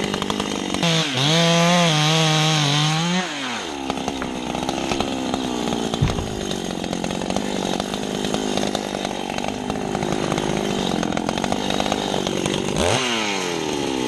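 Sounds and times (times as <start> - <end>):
chainsaw running at high revs: 0.0 - 14.0
sharp knock: 6.0 - 6.6.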